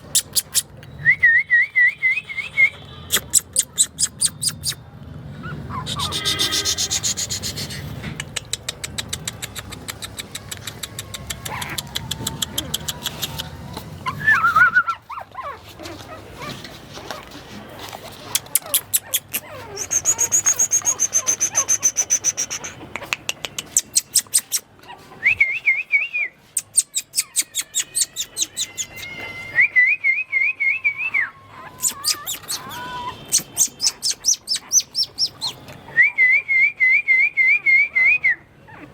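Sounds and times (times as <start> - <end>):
small bird singing: 3.1 - 4.8, 18.5 - 22.8, 26.6 - 29.1, 31.8 - 35.6.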